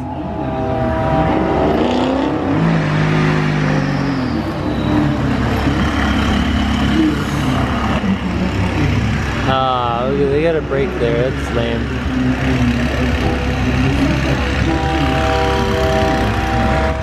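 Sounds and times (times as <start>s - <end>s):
sports car engine revving: 0.0s - 17.0s.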